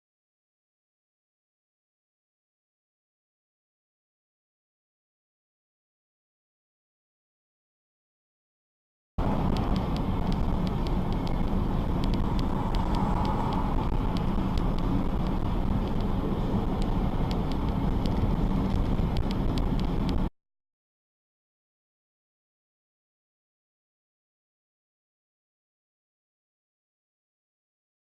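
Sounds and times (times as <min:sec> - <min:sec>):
car road noise rumble: 0:09.2 - 0:20.3
faint ticks: 0:09.5 - 0:16.1.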